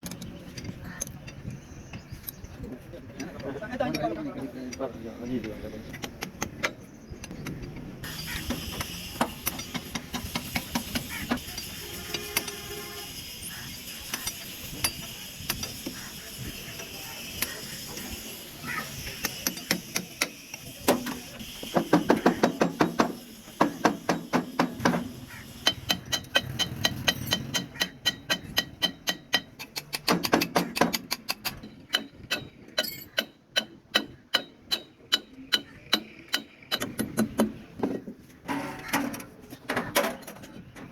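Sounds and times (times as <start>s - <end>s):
hand tools striking metal: 6.0s - 12.6s, 13.5s - 16.2s, 16.8s - 37.6s.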